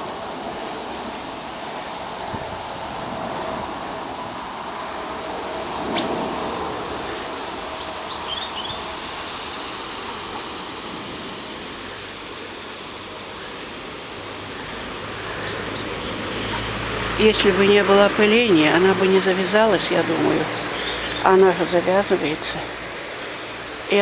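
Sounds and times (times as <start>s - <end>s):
bird chirping: 0.0s - 1.4s, 7.6s - 9.0s, 14.6s - 16.7s, 20.1s - 21.6s
wind through foliage: 0.0s - 24.0s.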